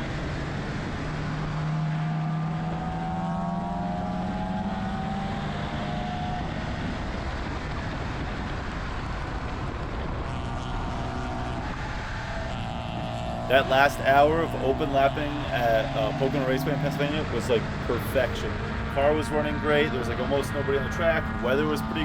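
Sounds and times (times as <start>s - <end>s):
wind and road noise: 0.0s - 22.0s
car engine pulling under load: 10.2s - 22.0s.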